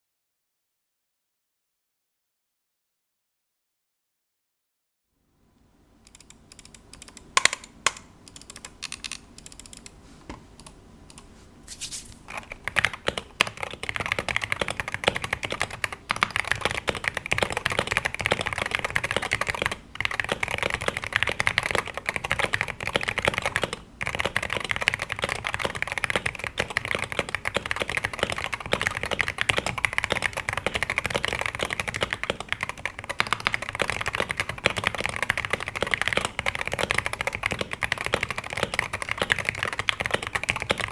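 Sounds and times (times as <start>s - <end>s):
mechanical keyboard typing: 6.1s - 10.0s, 12.3s - 40.9s.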